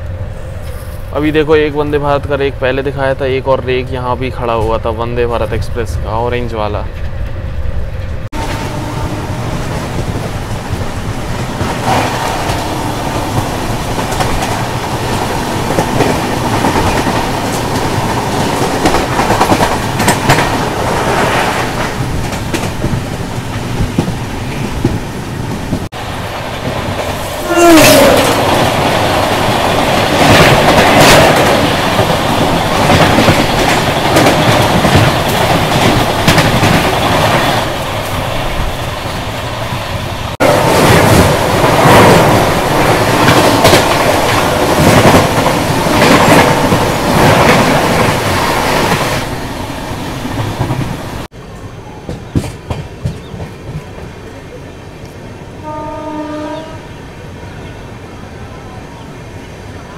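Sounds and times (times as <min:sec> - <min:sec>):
train wheels clacking on rails: 0:08.1 - 0:54.4.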